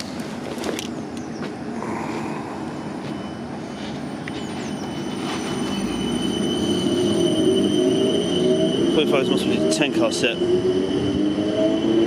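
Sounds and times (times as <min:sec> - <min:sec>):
electric train rumbling on rails: 0:00.0 - 0:12.0
rising whine: 0:01.7 - 0:12.0
thin high tone: 0:02.8 - 0:09.2.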